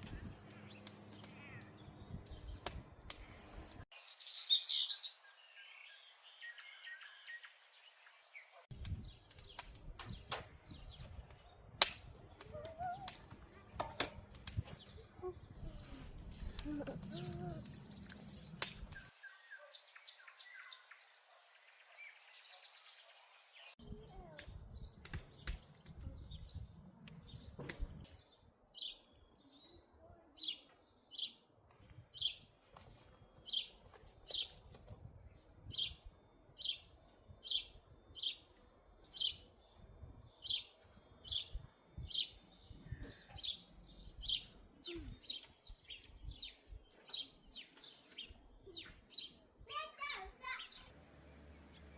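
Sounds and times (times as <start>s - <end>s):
bird chirping: 3.9s - 11.6s, 14.4s - 31.5s, 35.6s - 51.9s.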